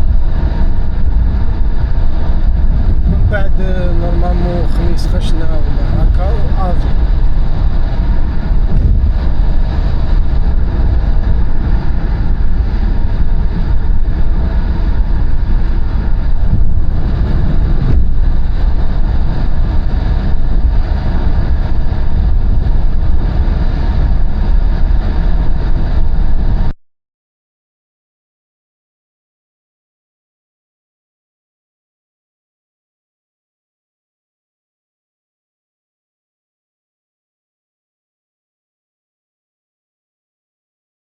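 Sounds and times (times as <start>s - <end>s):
car driving at highway speed: 0.0s - 26.7s.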